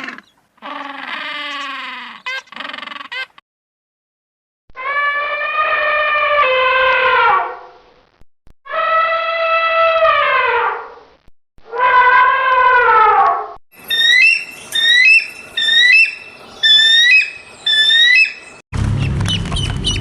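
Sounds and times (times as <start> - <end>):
long animal calls: 0.0 - 3.4, 4.8 - 7.5, 8.7 - 10.7, 11.7 - 18.4.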